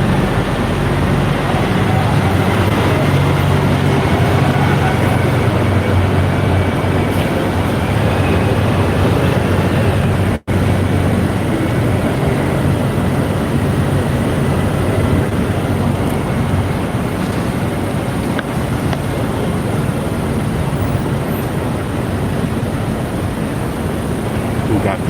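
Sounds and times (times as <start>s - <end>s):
street traffic rumble: 0.0s - 25.0s.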